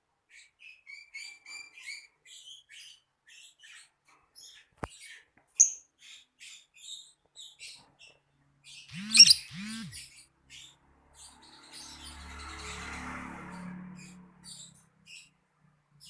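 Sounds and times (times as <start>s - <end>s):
lovebird chirping: 8.8s - 10.1s.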